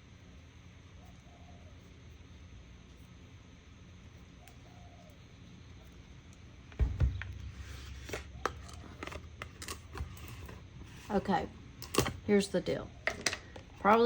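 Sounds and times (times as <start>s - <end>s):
low steady hum: 0.0s - 14.0s
heavy knock on table: 6.8s - 8.5s.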